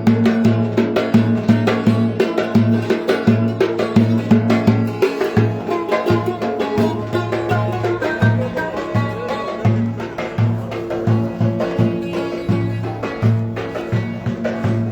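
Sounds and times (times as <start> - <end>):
folk dance melody: 0.0 - 14.9
steady drum beat: 0.0 - 14.9.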